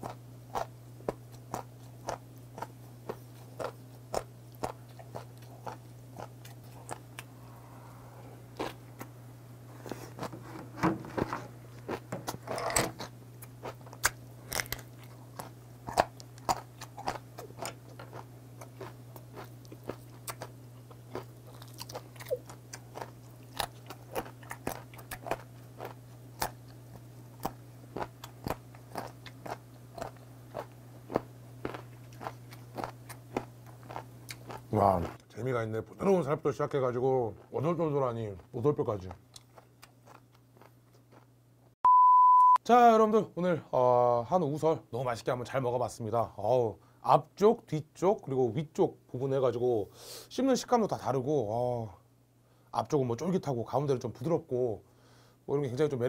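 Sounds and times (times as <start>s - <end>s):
chewing and crunching cartilage: 0.0s - 7.4s, 8.5s - 9.1s, 11.7s - 35.3s, 36.7s - 41.8s
low hum: 0.2s - 32.8s.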